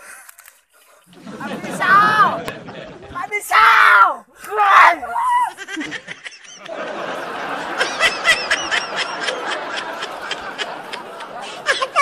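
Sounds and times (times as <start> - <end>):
high-pitched snickering laughs: 5.5 - 6.7, 7.4 - 12.0.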